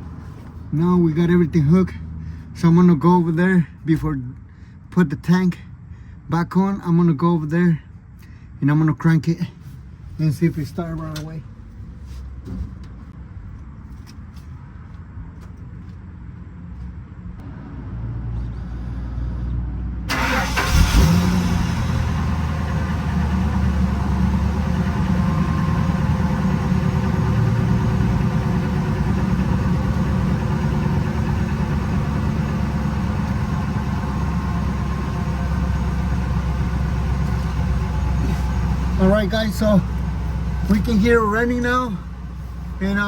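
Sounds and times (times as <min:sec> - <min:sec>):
engine running: 0:17.4 - 0:43.0
engine cranking and starting: 0:20.1 - 0:42.8.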